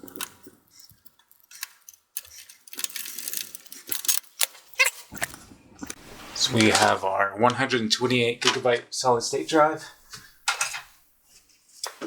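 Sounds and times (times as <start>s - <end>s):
screwdriver clicking on metal screw: 0.0s - 4.5s.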